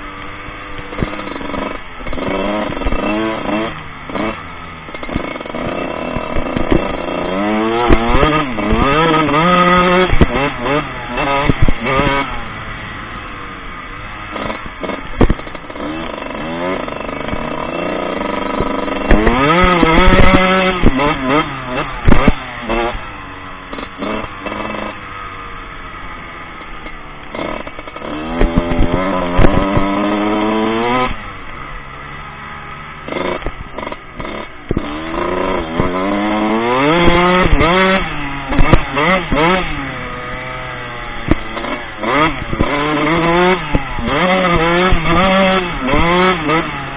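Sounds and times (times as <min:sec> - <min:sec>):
motocross bike engine revving: 0:00.0 - 0:46.9
sharp knocks and clatter: 0:01.0 - 0:12.3, 0:14.3 - 0:23.0, 0:33.1 - 0:39.8.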